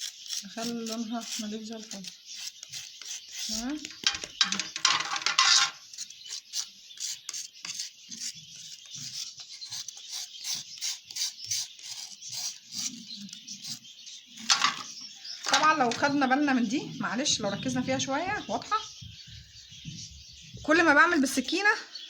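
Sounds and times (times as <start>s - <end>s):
knife scraping cuttlefish bone: 0.0s - 4.0s, 5.9s - 13.9s.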